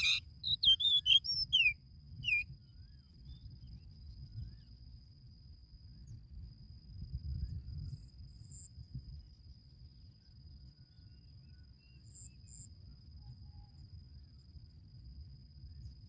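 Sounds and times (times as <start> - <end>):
short high chirps: 0.0 - 2.4
insect trill: 0.0 - 5.4.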